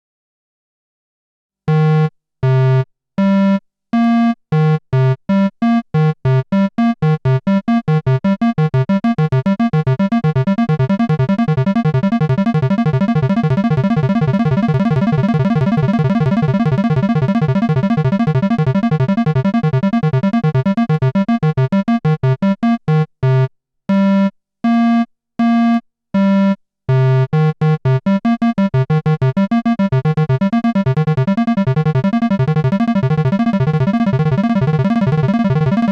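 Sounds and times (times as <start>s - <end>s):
synthesizer arpeggio notes: 6.0s - 23.4s, 26.9s - 35.9s.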